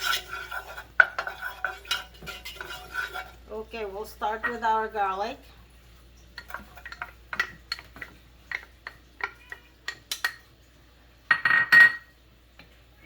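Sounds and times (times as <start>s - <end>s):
metal utensil clinking on cookware: 0.0s - 3.4s, 6.4s - 10.4s, 11.3s - 12.1s.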